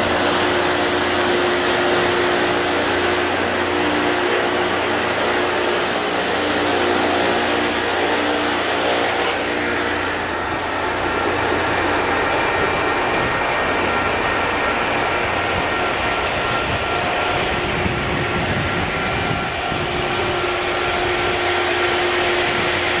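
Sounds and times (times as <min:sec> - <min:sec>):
grinding stones on rails: 0:00.0 - 0:17.3
faint steady whines: 0:00.0 - 0:23.0
machine engine noise: 0:00.0 - 0:23.0
wind buffeting microphone: 0:00.0 - 0:23.0.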